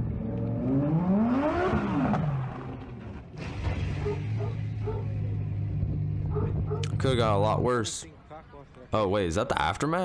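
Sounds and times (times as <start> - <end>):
car engine revving: 0.0 - 7.1.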